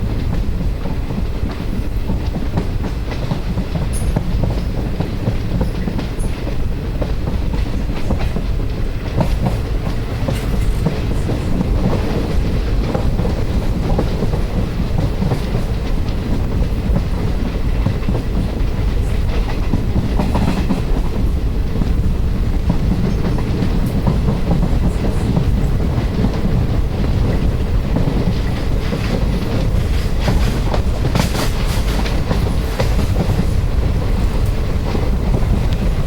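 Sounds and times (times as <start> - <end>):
train rumbling: 0.0 - 36.0
wheels clattering over rail joints: 22.6 - 36.0.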